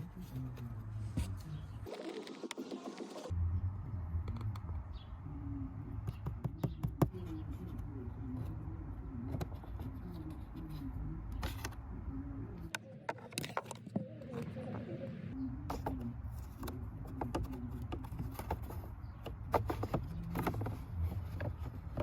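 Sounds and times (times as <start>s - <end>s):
low hum: 0.0s - 6.1s.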